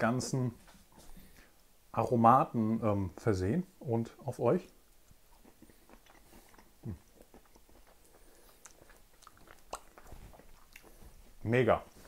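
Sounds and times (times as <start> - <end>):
person chewing shrimp: 5.0 - 11.4.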